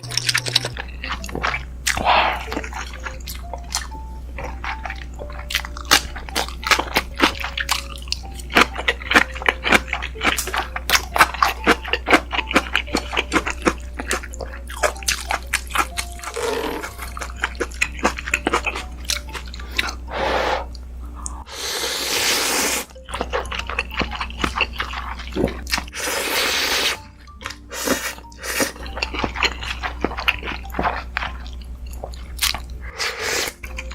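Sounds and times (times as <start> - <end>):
slurping: 0.0 - 33.9
wet chewing: 0.0 - 33.9.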